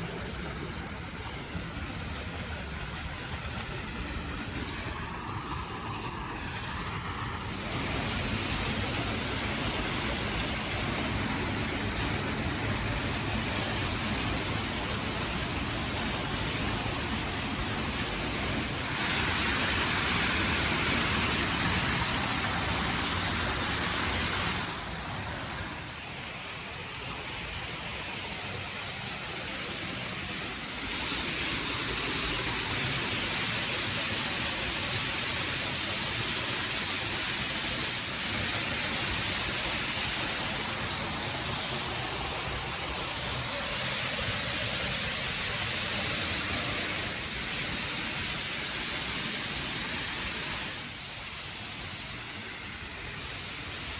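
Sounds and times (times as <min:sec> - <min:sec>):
waterfall roaring: 0:00.0 - 0:53.9.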